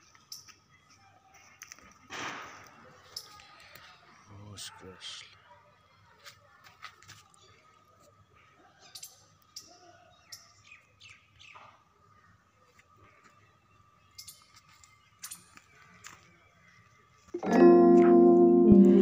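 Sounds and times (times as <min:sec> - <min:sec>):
small birds chirping: 0:07.2 - 0:17.4
loud music: 0:17.4 - 0:19.0.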